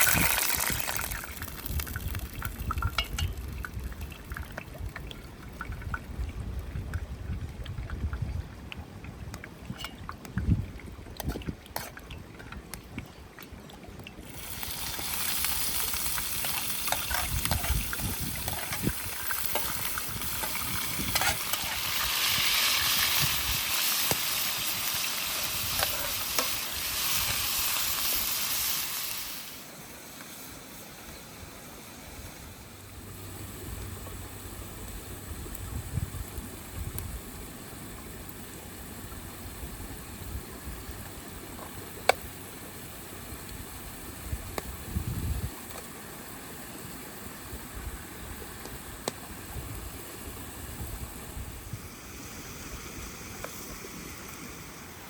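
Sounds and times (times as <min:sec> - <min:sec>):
food sizzling in a pan: 0:00.0 - 0:01.6, 0:14.3 - 0:29.6.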